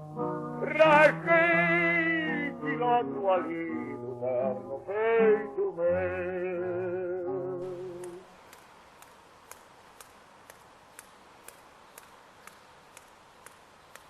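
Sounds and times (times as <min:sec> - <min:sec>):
low hiss: 0:00.0 - 0:14.0
faint sharp clicks: 0:07.7 - 0:14.0.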